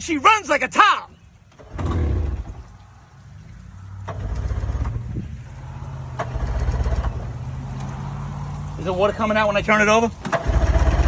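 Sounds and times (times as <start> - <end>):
outboard motor running: 1.5 - 3.2, 4.0 - 7.4, 10.3 - 11.0.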